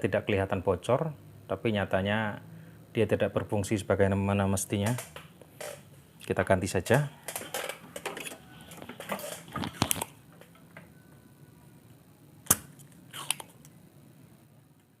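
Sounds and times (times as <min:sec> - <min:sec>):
small parts rustling: 0:07.2 - 0:10.6.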